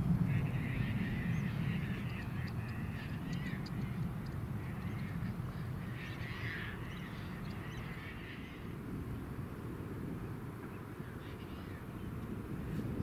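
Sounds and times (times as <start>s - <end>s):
steady low rumble: 0.0s - 13.0s
birds calling harshly: 0.2s - 8.8s.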